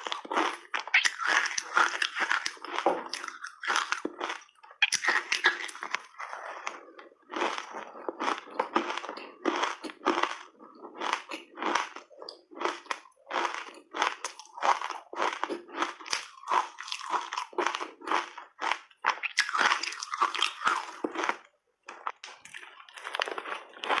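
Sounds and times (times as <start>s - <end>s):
ice being crunched by chewing: 0.0s - 24.0s.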